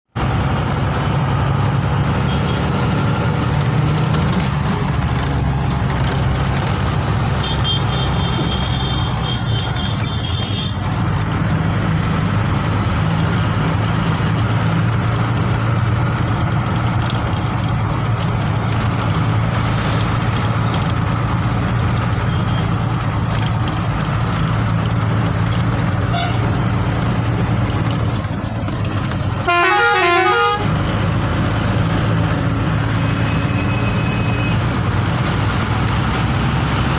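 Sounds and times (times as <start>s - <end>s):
road traffic: 0.0s - 36.9s
truck engine running: 0.2s - 36.9s.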